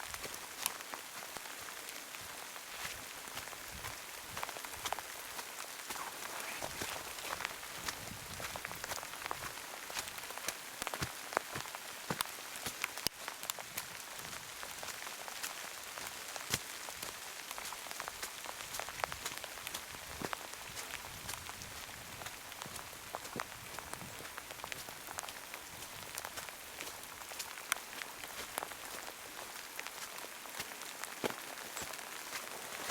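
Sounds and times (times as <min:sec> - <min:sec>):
heavy rain hissing: 0:03.6 - 0:10.3.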